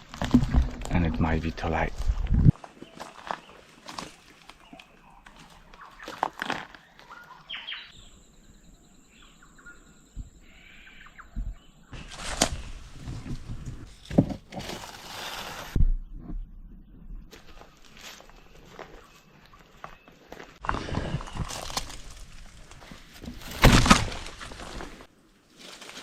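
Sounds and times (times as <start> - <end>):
footsteps in dry leaves: 1.7 - 4.8, 17.3 - 26.0
birds calling: 2.6 - 13.6.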